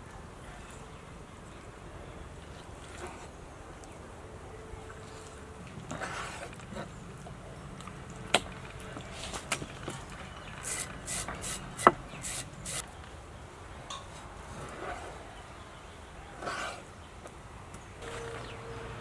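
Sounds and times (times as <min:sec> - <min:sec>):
knife rasping scrapes: 0:10.6 - 0:12.8.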